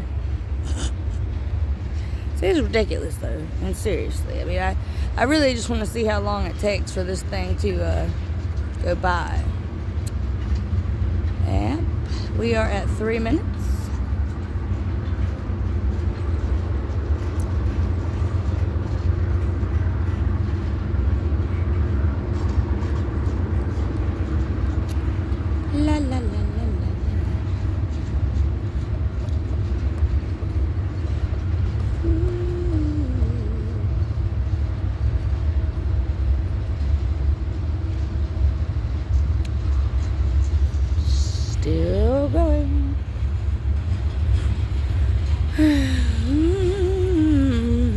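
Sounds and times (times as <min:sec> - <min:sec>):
freight train rolling past: 0:00.0 - 0:45.6
faint steady tones: 0:25.6 - 0:35.4, 0:40.5 - 0:47.9.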